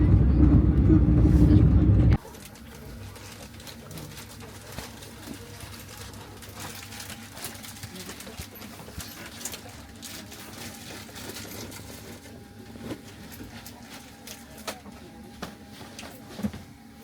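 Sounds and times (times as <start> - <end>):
train carriage low hum: 0.0 - 3.6.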